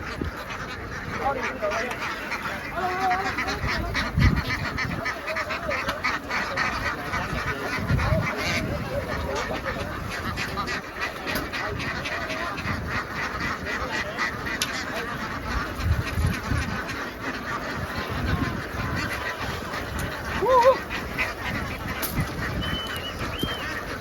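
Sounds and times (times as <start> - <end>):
flock of ducks quacking: 0.0 - 24.0.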